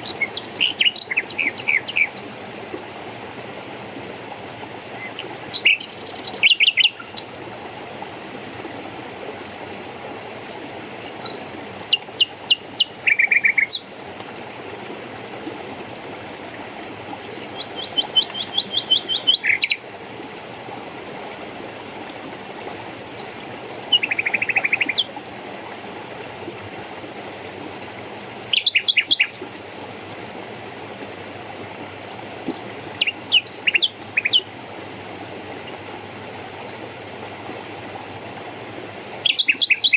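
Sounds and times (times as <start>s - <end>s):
songbird chirping and trilling: 0.0s - 2.3s, 5.2s - 7.2s, 11.2s - 13.9s, 17.6s - 19.8s, 27.3s - 29.4s, 37.5s - 39.9s
stream rushing: 0.0s - 39.9s.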